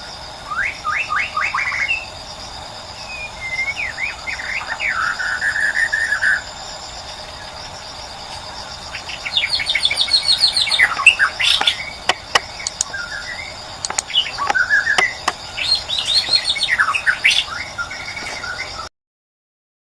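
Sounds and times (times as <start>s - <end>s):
insect buzz: 0.0s - 18.9s.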